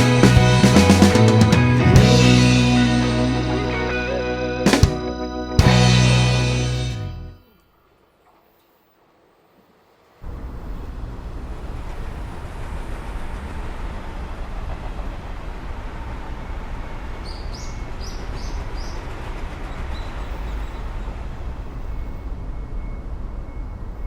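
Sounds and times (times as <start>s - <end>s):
train running: 0.0s - 4.4s.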